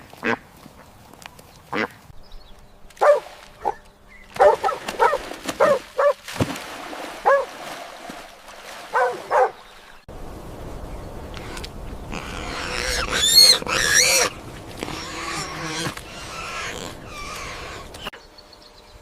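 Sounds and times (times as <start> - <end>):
dog barking: 3.0 - 3.8, 4.4 - 6.2, 7.2 - 7.5, 8.9 - 9.6.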